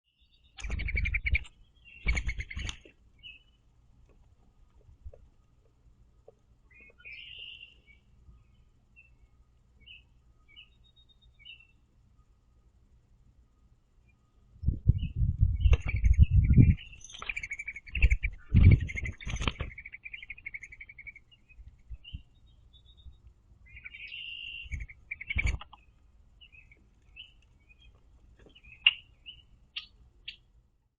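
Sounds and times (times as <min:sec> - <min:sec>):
birds chirping and trilling: 0:00.1 - 0:03.7, 0:06.6 - 0:12.2, 0:14.0 - 0:30.6
dove wings flapping: 0:00.6 - 0:02.9, 0:17.2 - 0:19.8, 0:25.3 - 0:25.8.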